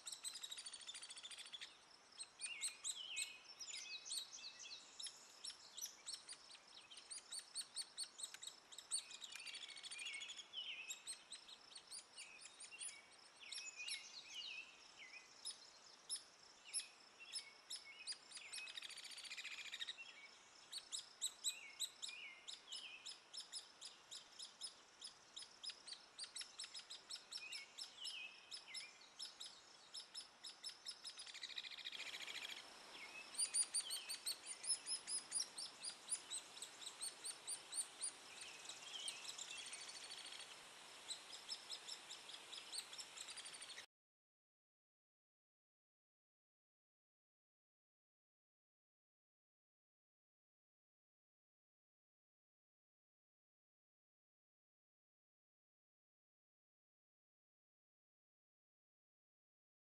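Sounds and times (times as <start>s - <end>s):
woodpecker chick begging chirps: 0.0s - 14.4s, 15.3s - 43.9s.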